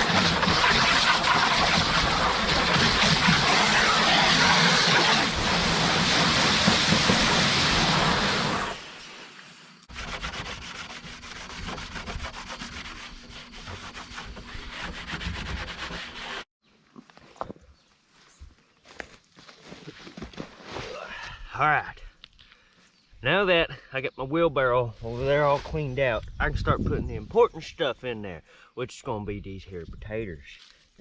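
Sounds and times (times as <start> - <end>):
quick scraping strokes: 0.0 - 16.5
wheelbarrow being rubbed: 0.0 - 16.5, 25.0 - 26.0.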